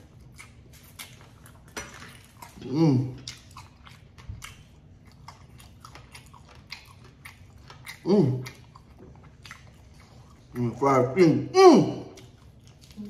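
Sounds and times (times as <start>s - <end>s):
crunchy chewing: 0.0s - 10.8s, 12.0s - 13.0s
person humming mmm: 2.6s - 3.3s, 8.0s - 8.6s.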